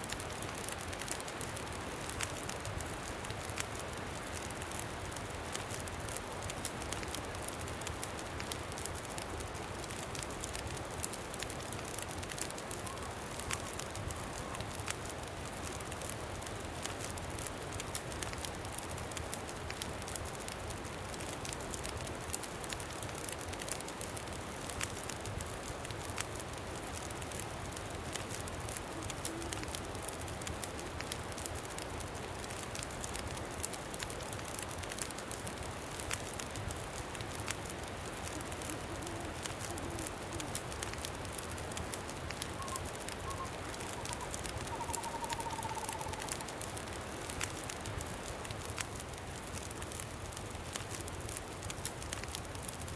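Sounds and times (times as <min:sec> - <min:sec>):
campfire crackling and popping: 0:00.0 - 0:52.9
wind blowing: 0:42.1 - 0:47.0.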